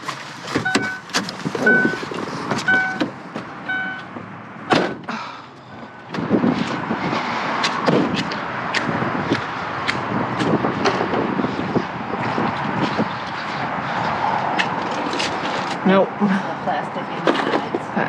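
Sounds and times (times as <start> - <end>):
car door warning chime: 0.6 - 1.0, 1.6 - 2.0, 2.7 - 3.1, 3.7 - 4.1.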